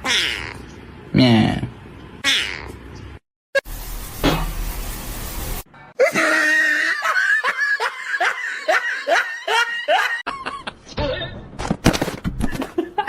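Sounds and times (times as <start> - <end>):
person laughing: 6.0 - 10.8.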